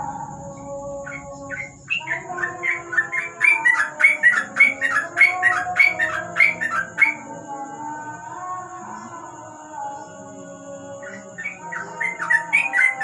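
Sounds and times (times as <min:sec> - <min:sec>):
bird chirping rapidly: 0:00.0 - 0:07.2, 0:11.2 - 0:13.0.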